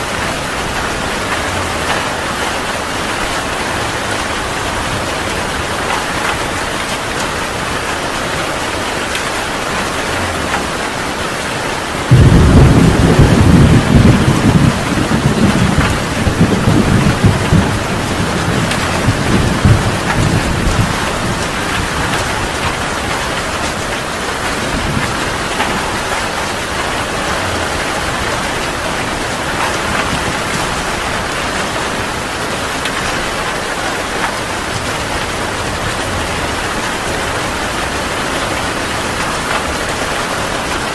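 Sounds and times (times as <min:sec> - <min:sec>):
heavy rain hissing: 0:00.0 - 0:40.9
thunderclap rumbling: 0:11.8 - 0:40.9.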